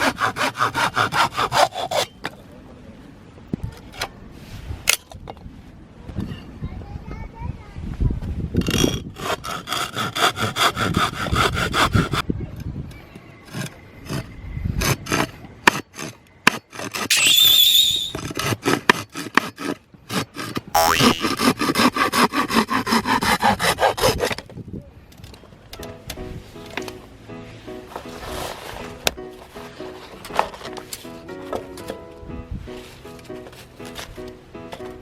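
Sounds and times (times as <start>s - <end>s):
hand saw cutting wood: 0.0s - 2.2s, 9.2s - 12.2s, 15.1s - 24.5s.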